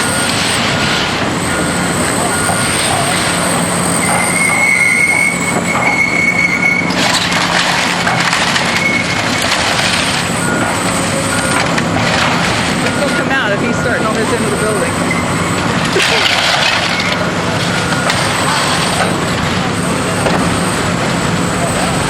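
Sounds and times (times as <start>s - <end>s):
demolition crunching and clattering: 0.0s - 22.0s
diesel engine running: 0.0s - 22.0s
high metallic squeal: 1.4s - 7.2s, 8.6s - 9.2s.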